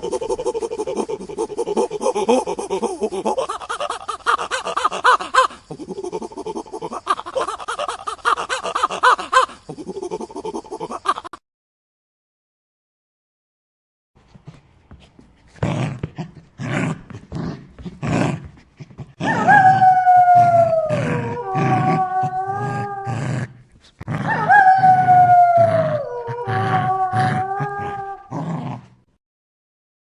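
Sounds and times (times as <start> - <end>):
dogs howling: 19.2 - 23.2, 24.2 - 28.3.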